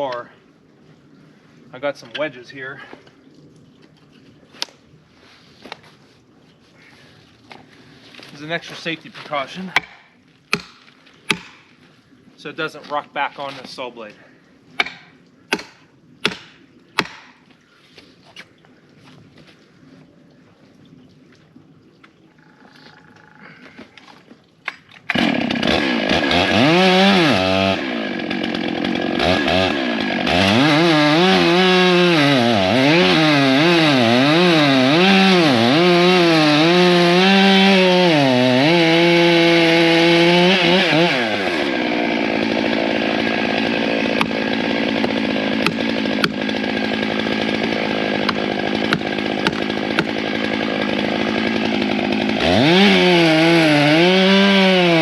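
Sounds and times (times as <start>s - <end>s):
chainsaw revving and idling: 25.1s - 55.0s.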